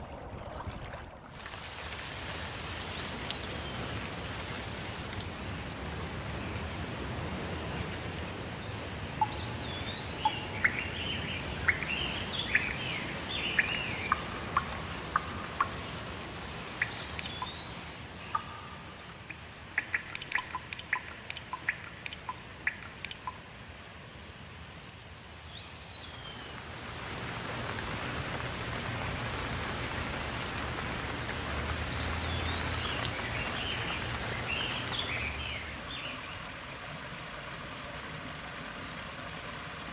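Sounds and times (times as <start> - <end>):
rushing water: 0.0 - 39.9
birds singing: 9.2 - 15.7, 16.8 - 18.8, 31.8 - 36.4.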